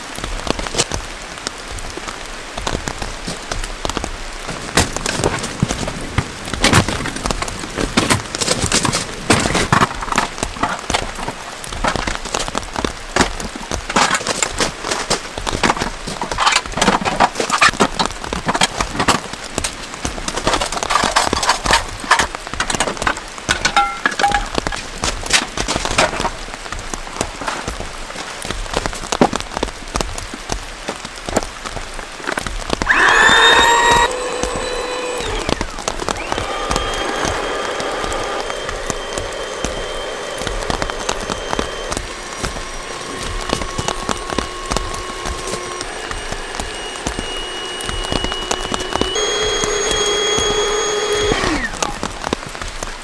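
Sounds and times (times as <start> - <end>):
heavy rain falling: 0.0 - 53.0
sharp clicks and knocks: 2.6 - 26.4, 32.3 - 52.9
squeaky pitched sound: 32.9 - 52.0.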